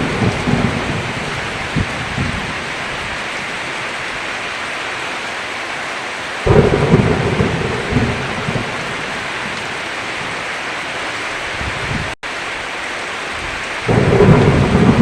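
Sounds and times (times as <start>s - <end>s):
thunder clap and rumble: 0.0s - 2.7s, 6.5s - 9.8s, 13.8s - 15.0s
heavy rain falling: 0.0s - 15.0s.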